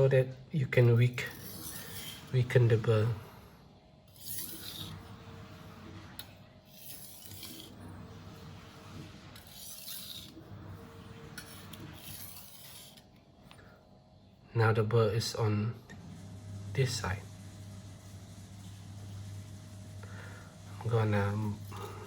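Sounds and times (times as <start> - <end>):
knife scraping on whetstone: 1.2 - 2.8, 4.1 - 5.5, 6.7 - 13.2.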